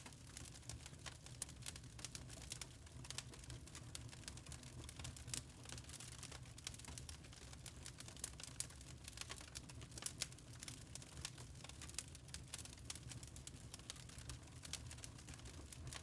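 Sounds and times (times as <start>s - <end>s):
charcoal crackling: 0.0s - 16.0s.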